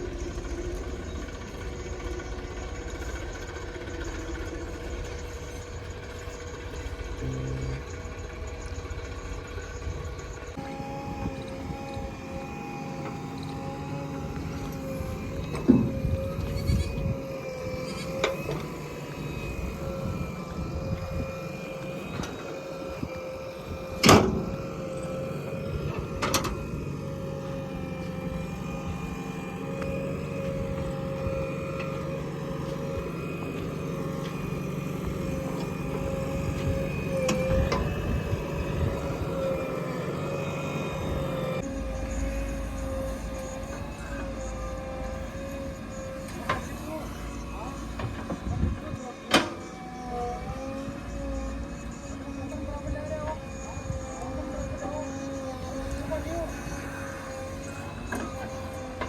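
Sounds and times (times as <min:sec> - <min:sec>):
heavy diesel engine rumbling: 0:00.0 - 0:59.0
machinery whine: 0:00.0 - 0:59.0
short steady tone: 0:07.2 - 0:08.0.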